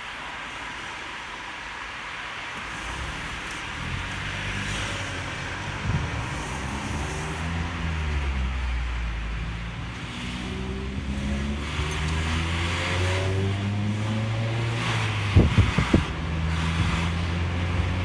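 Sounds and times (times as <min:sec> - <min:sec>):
wind and road noise: 0:00.0 - 0:18.0
car engine exhaust note: 0:04.7 - 0:18.0.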